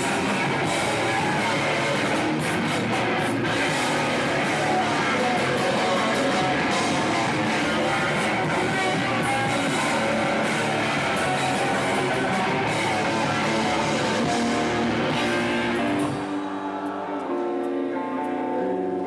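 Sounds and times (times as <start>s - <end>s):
live metal band playing: 0.0s - 19.0s.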